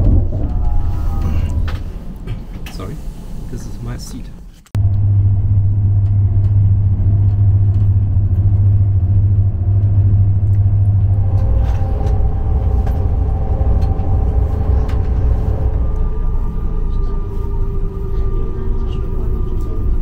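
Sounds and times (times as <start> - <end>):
train cabin rumble: 0.0 - 20.0
steady whining tones: 4.7 - 20.0.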